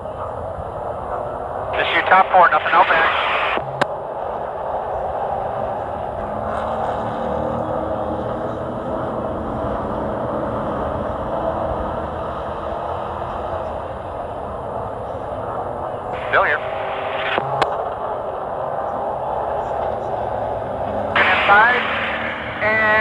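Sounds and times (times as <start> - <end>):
road noise: 0.0 - 23.0
truck engine racing: 0.0 - 23.0.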